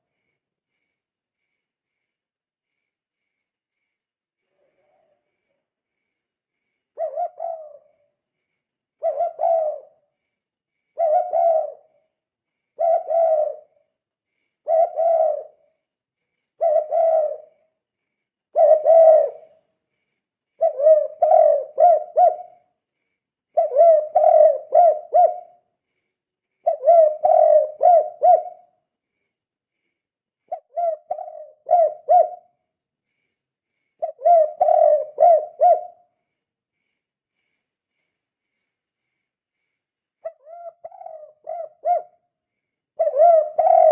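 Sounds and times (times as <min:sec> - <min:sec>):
dove cooing: 0:06.9 - 0:08.1, 0:09.0 - 0:10.0, 0:11.0 - 0:12.0, 0:12.8 - 0:13.8, 0:14.6 - 0:15.7, 0:16.6 - 0:17.6, 0:18.5 - 0:19.5, 0:20.6 - 0:22.6, 0:23.6 - 0:25.6, 0:26.6 - 0:28.7, 0:30.5 - 0:32.6, 0:34.0 - 0:36.1, 0:40.2 - 0:42.2, 0:43.0 - 0:43.9.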